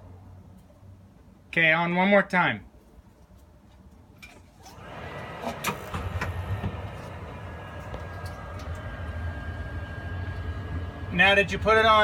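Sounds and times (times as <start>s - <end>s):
faint steady whine: 4.6s - 12.0s.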